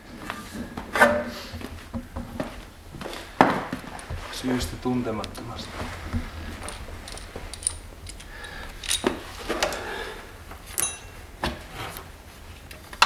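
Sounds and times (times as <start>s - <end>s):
metal tools clinking: 6.5s - 9.8s, 10.7s - 11.3s
short metallic ring: 10.8s - 11.2s.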